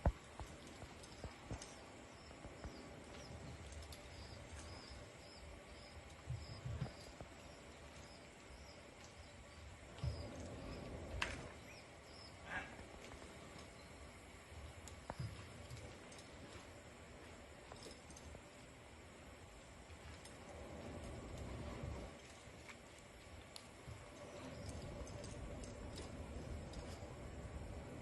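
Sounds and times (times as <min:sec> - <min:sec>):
insects chirping: 0:00.1 - 0:28.0
soft low thumps: 0:06.2 - 0:07.4, 0:09.8 - 0:11.1.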